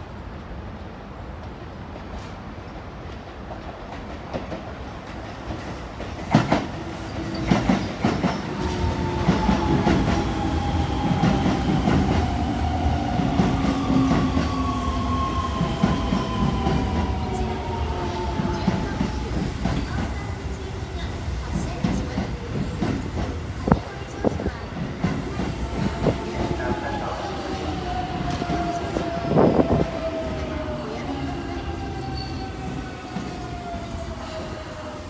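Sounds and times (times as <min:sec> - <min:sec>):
train rumble: 0:00.0 - 0:35.0.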